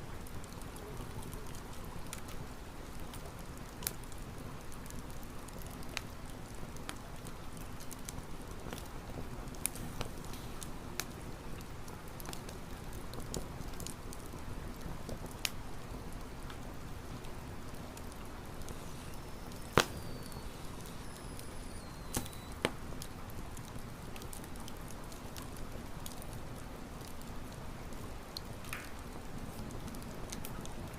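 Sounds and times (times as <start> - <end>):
campfire crackling and popping: 0.1 - 30.9.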